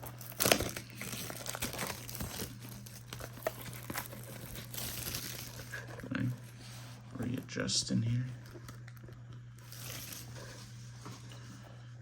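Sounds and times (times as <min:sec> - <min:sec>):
wrapping being torn open: 0:00.0 - 0:06.1, 0:08.6 - 0:10.4.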